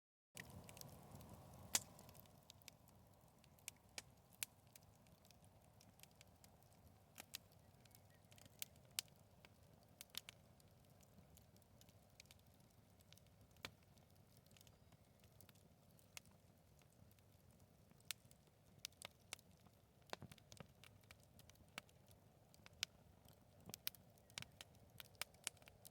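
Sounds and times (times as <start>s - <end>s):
low rush of flames: 0.4s - 8.6s
bonfire pops and snaps: 0.4s - 25.9s.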